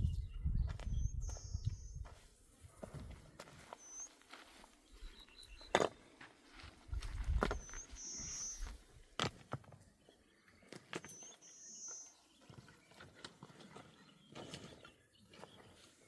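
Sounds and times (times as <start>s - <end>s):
bird calling: 3.7s - 4.2s, 7.4s - 9.0s, 10.9s - 12.6s.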